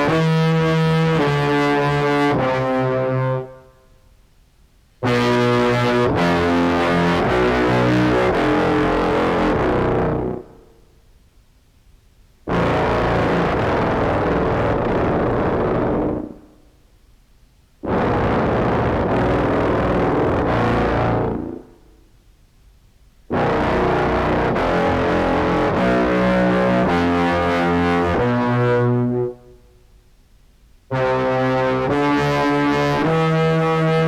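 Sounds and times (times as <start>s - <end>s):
distorted clarinet notes: 5.0s - 10.5s, 12.5s - 16.4s, 17.8s - 21.7s, 23.3s - 29.5s, 30.9s - 34.0s.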